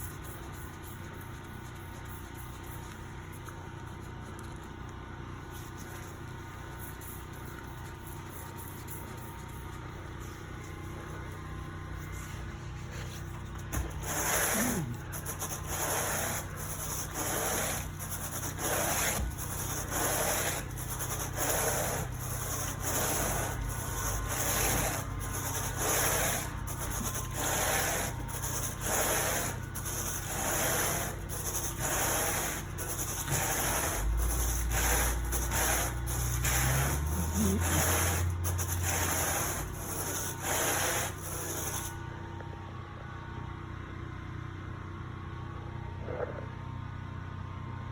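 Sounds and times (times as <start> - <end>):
rake scraping carpet: 12.0 - 41.9.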